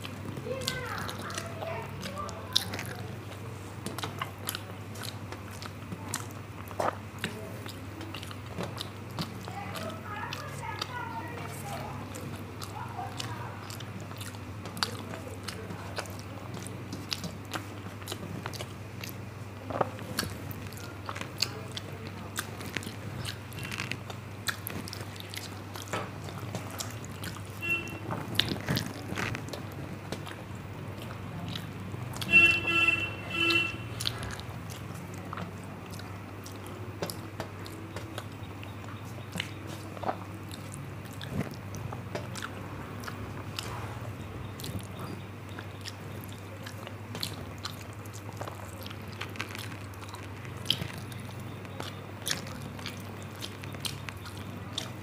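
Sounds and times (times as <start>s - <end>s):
chewing with mouth clicks: 0.0s - 55.0s
low steady hum: 0.0s - 55.0s
short pitched honks: 27.6s - 28.1s, 32.2s - 34.0s.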